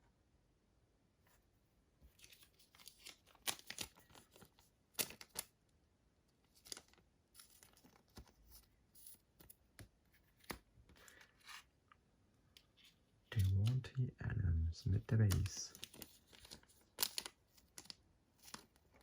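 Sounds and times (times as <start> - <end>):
trading cards rustling and clicking: 2.1 - 5.6, 6.4 - 11.8, 12.6 - 14.0, 14.8 - 19.0.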